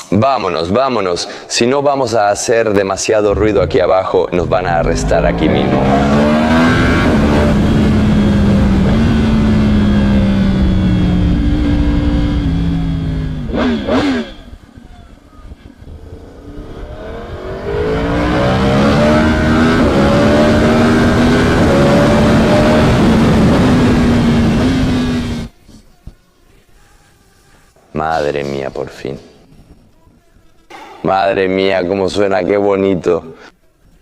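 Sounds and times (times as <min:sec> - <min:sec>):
motorcycle engine revving: 0:03.3 - 0:25.5.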